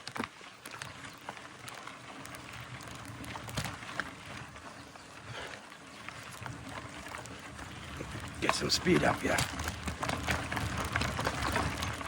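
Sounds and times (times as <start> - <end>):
bike clicks and knocks: 0.0 - 12.0
tyres rumbling on dirt: 0.0 - 12.0.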